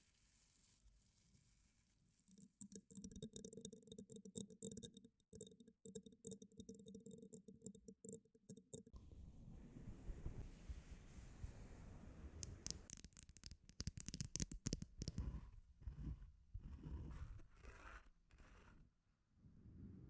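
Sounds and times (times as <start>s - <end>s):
soft hiss: 9.1s - 12.9s
fast tapping clicks: 12.4s - 15.4s.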